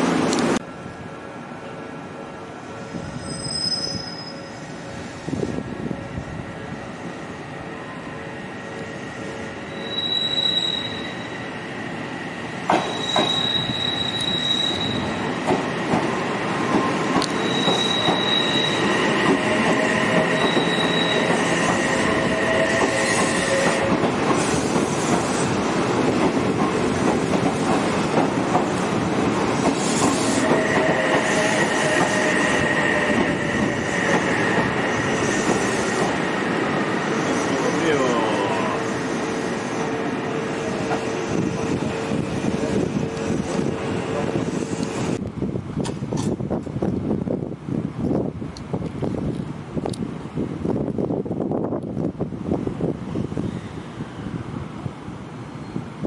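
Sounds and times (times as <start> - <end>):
train wheels squealing: 3.1 - 5.3, 9.0 - 11.6, 12.7 - 15.3, 16.6 - 25.6, 29.6 - 36.2, 36.9 - 41.8
train running rumble: 19.1 - 36.2.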